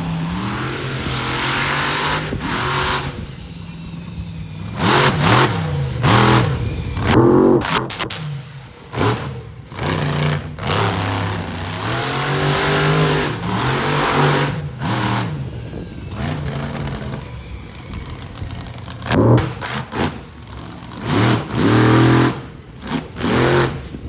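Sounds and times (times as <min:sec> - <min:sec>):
monster truck engine revving: 0:00.0 - 0:24.0.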